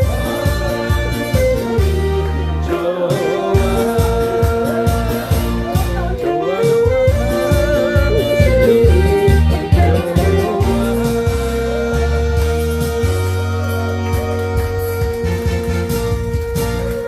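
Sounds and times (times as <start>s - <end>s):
alto saxophone melody: 0.0s - 17.0s
backing track with bass beat: 0.0s - 17.0s.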